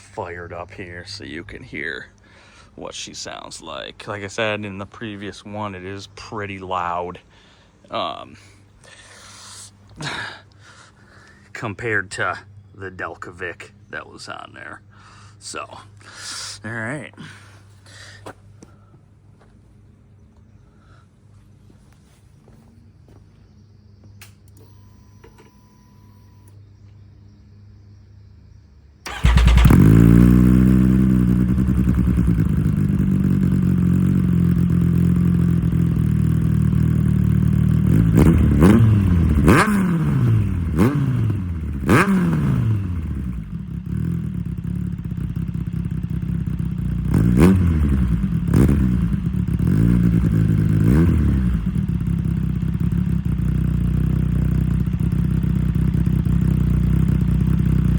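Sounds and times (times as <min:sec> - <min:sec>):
engine throttle blips: 0:29.0 - 0:57.9
motorcycle engine idling: 0:29.1 - 0:57.9.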